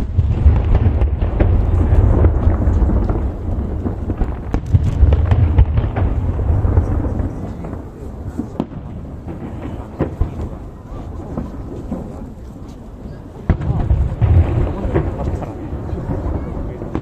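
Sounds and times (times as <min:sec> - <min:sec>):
fireworks booming: 0:00.0 - 0:17.0
fireworks cracking: 0:00.0 - 0:17.0.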